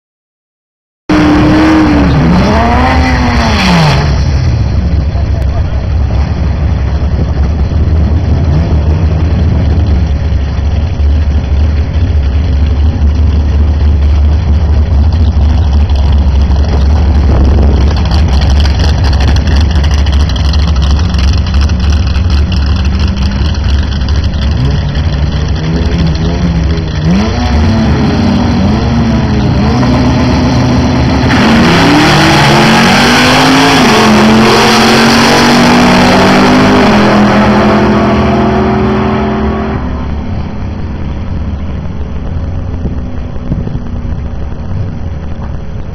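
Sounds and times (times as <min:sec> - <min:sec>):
car engine revving and accelerating: 0:01.1 - 0:45.9
drag car engines idling: 0:04.4 - 0:31.3, 0:40.0 - 0:45.9.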